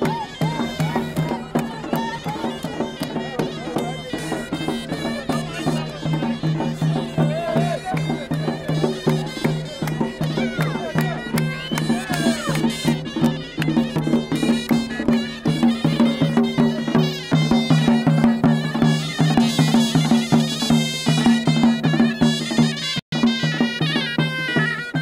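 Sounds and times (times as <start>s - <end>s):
wind instrument melody: 0.0s - 25.0s.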